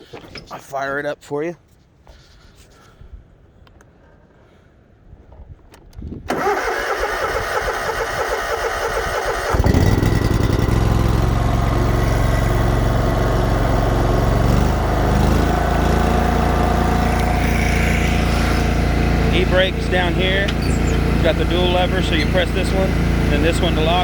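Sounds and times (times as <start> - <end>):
mower engine running: 6.3 - 24.0
starter motor cranking: 6.3 - 24.0.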